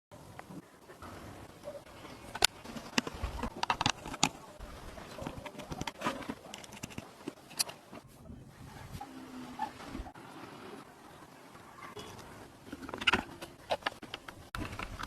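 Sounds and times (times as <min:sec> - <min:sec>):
sharp clicks and knocks: 0:02.2 - 0:04.5, 0:12.7 - 0:15.0.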